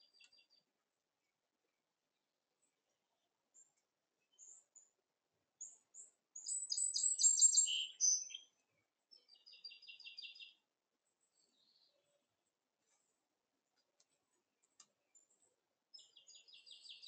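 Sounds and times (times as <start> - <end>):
small songbird singing: 0.0 - 0.7, 2.6 - 5.0, 5.6 - 12.3, 14.1 - 17.0.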